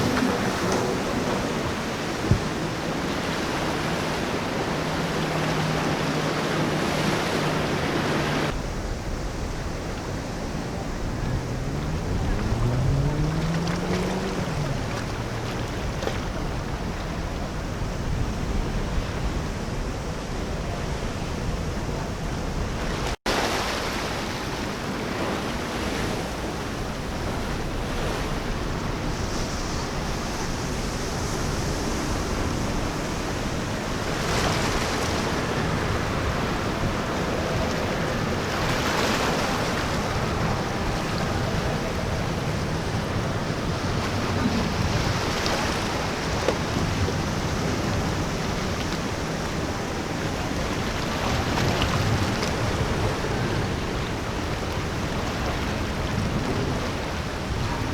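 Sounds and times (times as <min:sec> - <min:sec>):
wind buffeting microphone: 0:00.0 - 0:23.2, 0:24.0 - 0:57.9
ocean waves breaking: 0:00.0 - 0:57.9.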